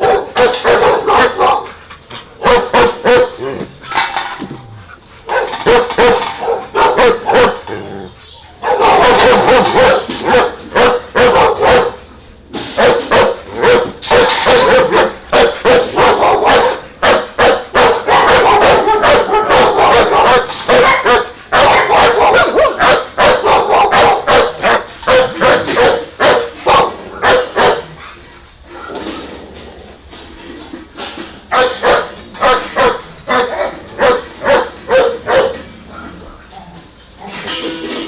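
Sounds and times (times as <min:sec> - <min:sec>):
dogs barking rapidly: 0:00.0 - 0:29.2, 0:31.2 - 0:36.2
dog yips: 0:17.8 - 0:27.8.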